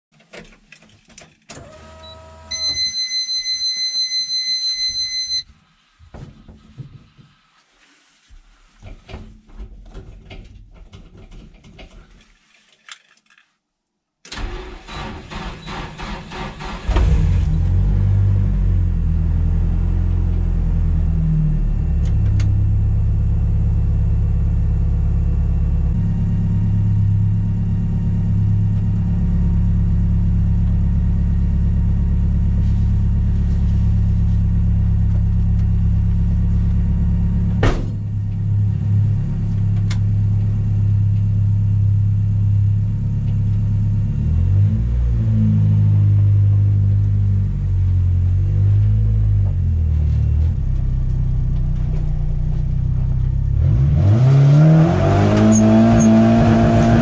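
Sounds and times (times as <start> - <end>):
high electronic beep: 2.0 - 5.5
car starter cranking: 14.3 - 17.5
car engine idling: 21.6 - 44.1.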